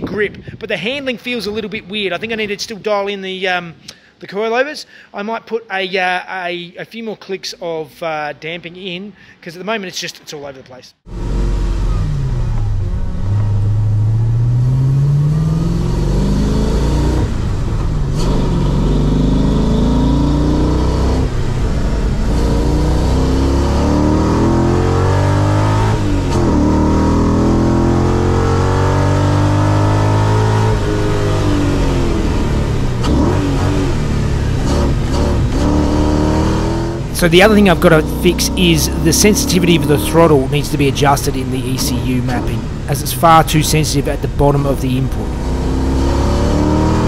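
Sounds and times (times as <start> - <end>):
car engine revving: 11.1 - 47.0.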